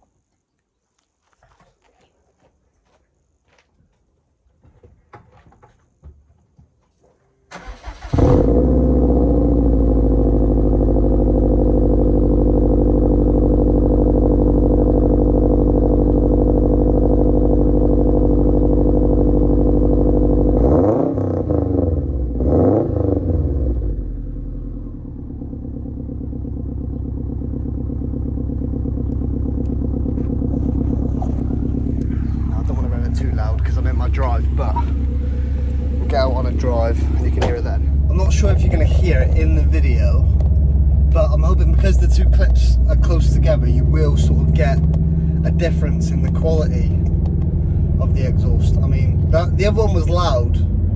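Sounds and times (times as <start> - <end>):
car engine revving: 7.5 - 50.9
car engine starting and idling: 7.5 - 50.9.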